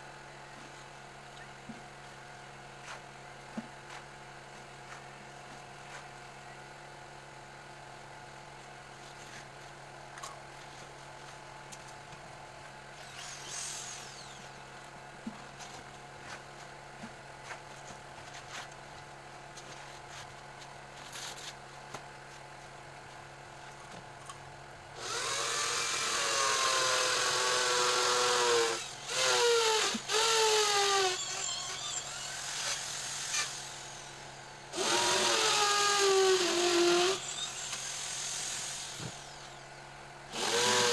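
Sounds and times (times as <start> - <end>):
electric power tool running: 13.1 - 14.4, 25.0 - 39.6, 40.3 - 40.9.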